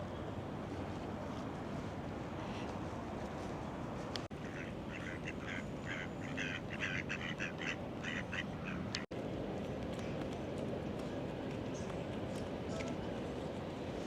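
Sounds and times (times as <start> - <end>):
low city rumble: 0.0 - 14.0
duck quacking: 4.4 - 8.8.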